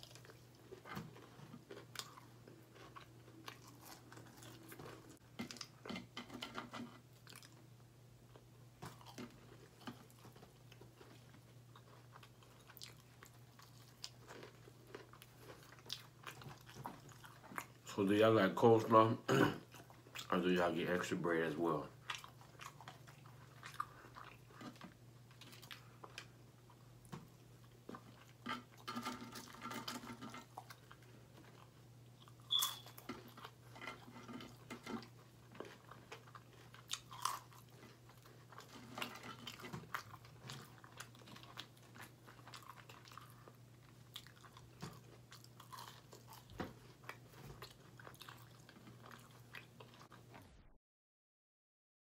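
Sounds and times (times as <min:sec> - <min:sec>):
person chewing crispy food: 0:00.0 - 0:06.0, 0:07.0 - 0:07.7, 0:08.3 - 0:17.9, 0:19.7 - 0:21.0, 0:21.7 - 0:50.4.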